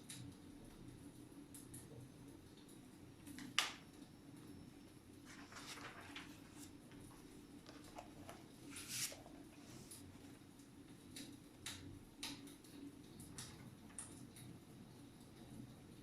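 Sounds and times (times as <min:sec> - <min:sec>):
low steady hum: 0:03.9 - 0:16.0.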